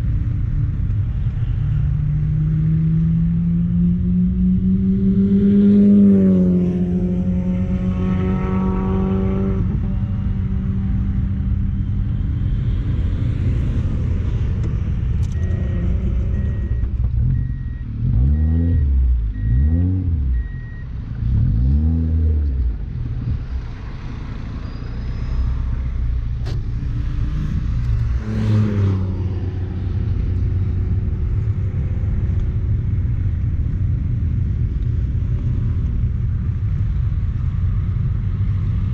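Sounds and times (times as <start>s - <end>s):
car engine revving through gears: 2.4s - 10.8s, 14.6s - 23.4s, 26.3s - 31.7s.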